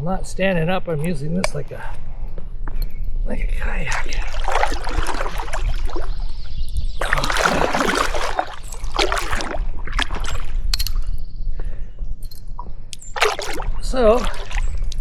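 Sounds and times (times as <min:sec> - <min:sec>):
paddle splashing water: 0:03.9 - 0:10.7, 0:13.0 - 0:15.0.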